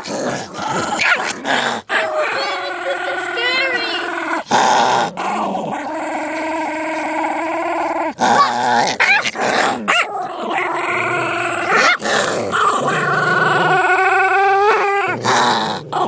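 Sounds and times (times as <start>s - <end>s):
dogs growling: 0.0s - 16.0s
dog yelping: 0.9s - 4.4s, 8.3s - 10.1s, 11.6s - 12.0s.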